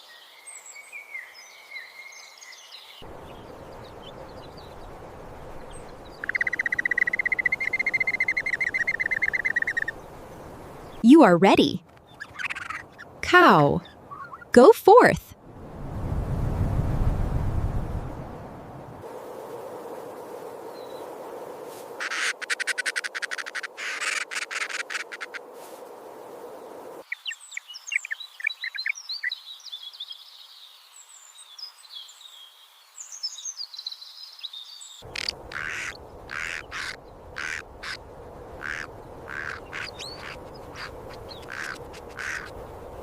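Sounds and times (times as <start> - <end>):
outdoor background hiss: 0.0 - 43.0
bird trilling chirps: 6.1 - 10.0, 12.1 - 13.1, 13.8 - 14.5, 38.6 - 43.0
bird rattling call: 11.9 - 13.1, 22.0 - 25.4, 35.1 - 38.0, 38.6 - 43.0.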